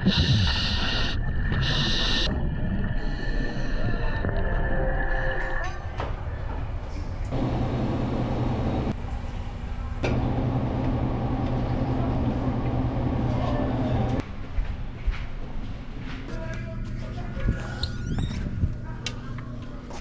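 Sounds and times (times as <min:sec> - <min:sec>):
low mechanical rumble with hum: 0:07.3 - 0:14.2.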